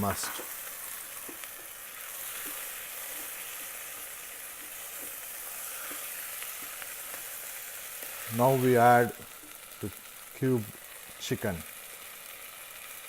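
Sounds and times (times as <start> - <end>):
onion and tomato sizzling: 0.0 - 13.0.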